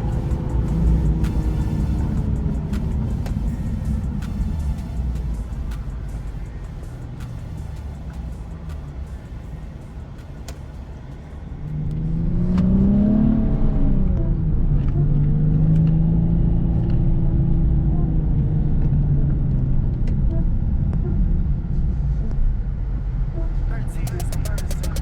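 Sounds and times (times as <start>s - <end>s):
car engine revving: 0.0s - 22.2s, 22.8s - 25.0s
low road rumble: 0.0s - 25.0s.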